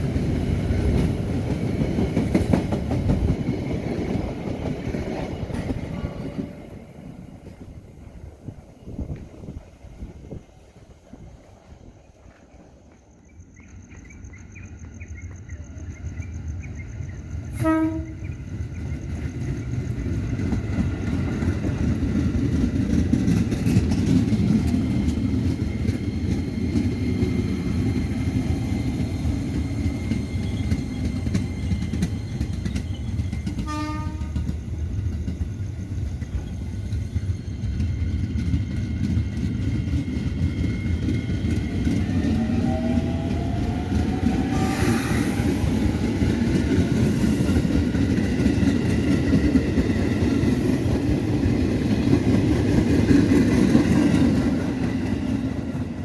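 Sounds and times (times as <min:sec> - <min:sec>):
train wheels rumbling on rails: 0:00.0 - 0:56.0
train horn toot: 0:17.5 - 0:18.4, 0:33.6 - 0:34.6, 0:44.5 - 0:45.3.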